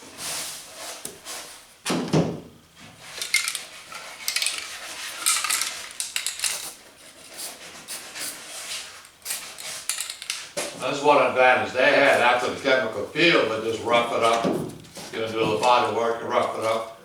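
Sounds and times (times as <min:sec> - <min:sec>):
aerosol can rattling: 0:03.2 - 0:06.8, 0:09.2 - 0:10.6.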